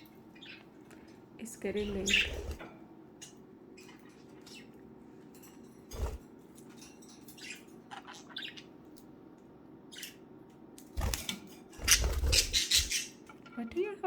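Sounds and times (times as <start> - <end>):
budgerigars chirping: 0.4 - 0.6, 1.8 - 2.6, 7.4 - 8.7, 11.8 - 13.2.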